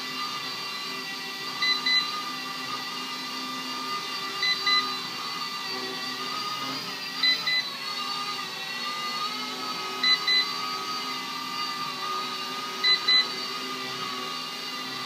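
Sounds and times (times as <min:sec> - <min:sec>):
short beeps: 0:07.2 - 0:07.7.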